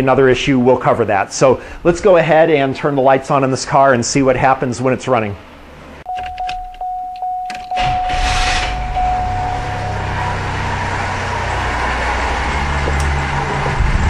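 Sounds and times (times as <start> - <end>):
car engine cranking and idling: 6.0 - 14.0
dashboard warning chime: 6.1 - 11.2.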